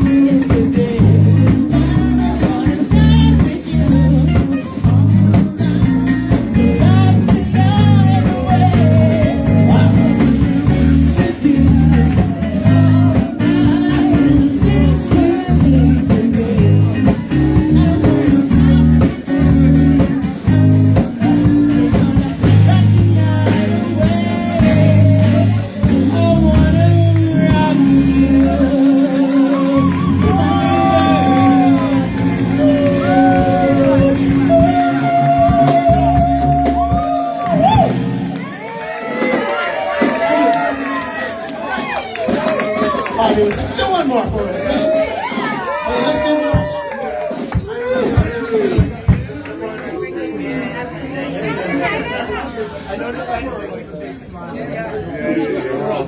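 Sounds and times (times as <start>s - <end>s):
electric guitar: 0.0s - 43.7s
band playing blues-rock: 0.0s - 49.3s.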